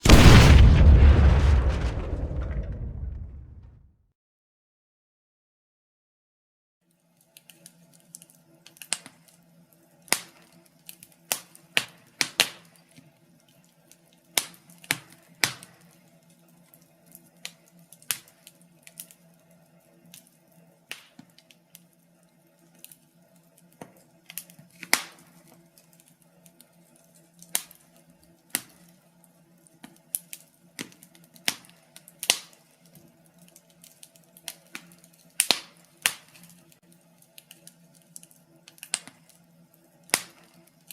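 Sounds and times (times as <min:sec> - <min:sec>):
wood fire crackling: 0:00.0 - 0:03.8.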